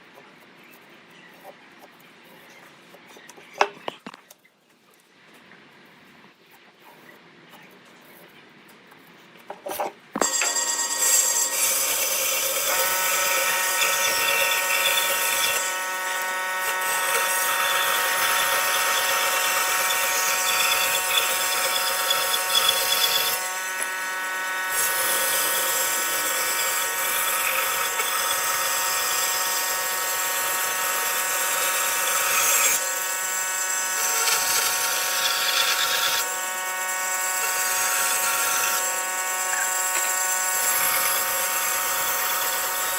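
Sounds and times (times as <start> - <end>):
power tool cutting wood: 10.2 - 42.9.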